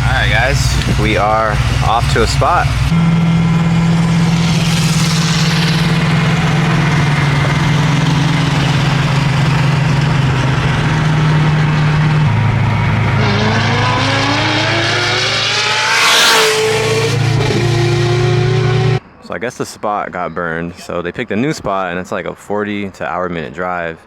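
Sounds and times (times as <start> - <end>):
car engine running: 0.0 - 19.0
loud burst of noise: 0.0 - 19.1.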